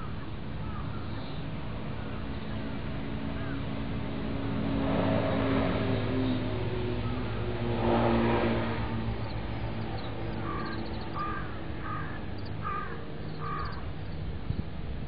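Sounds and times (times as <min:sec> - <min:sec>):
car passing: 0:03.7 - 0:14.1
crow cawing: 0:10.0 - 0:13.8.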